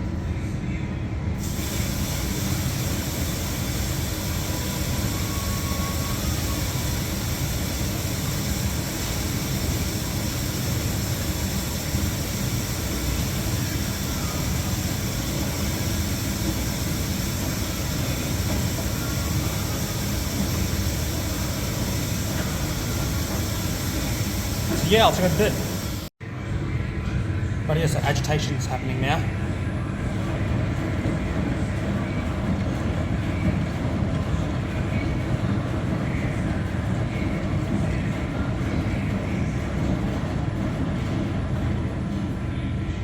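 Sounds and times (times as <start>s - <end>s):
washer filling with water: 1.4s - 26.1s.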